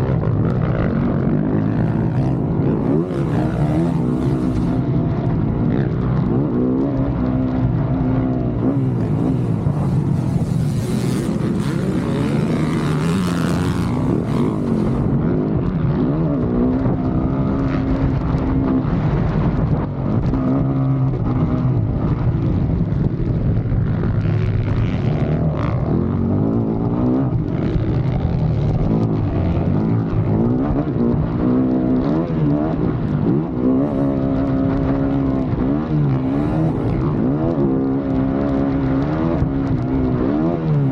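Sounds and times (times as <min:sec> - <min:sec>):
dirt bike engine revving: 0:00.0 - 0:05.1, 0:05.7 - 0:17.7, 0:28.9 - 0:40.9
wind noise rushing: 0:08.6 - 0:16.3.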